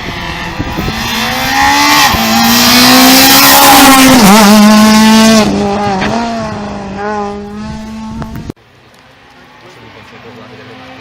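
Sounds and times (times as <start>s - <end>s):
rally car engine at high revs: 0.0s - 8.5s.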